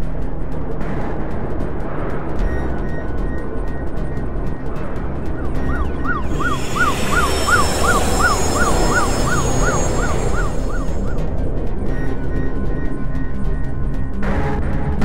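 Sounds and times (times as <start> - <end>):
low rumbling drone: 2.0 - 14.2
electronic siren yelping: 5.6 - 11.3
city hiss: 6.3 - 11.2.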